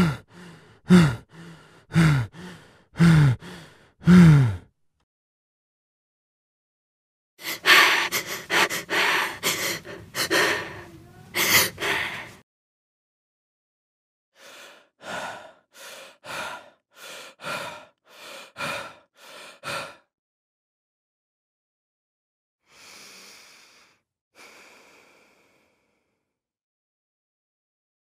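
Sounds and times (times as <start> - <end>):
man gasping breaths: 0.0 - 4.7, 7.4 - 12.4, 14.4 - 20.1
man panting: 0.0 - 4.7, 7.4 - 12.4, 14.4 - 20.1.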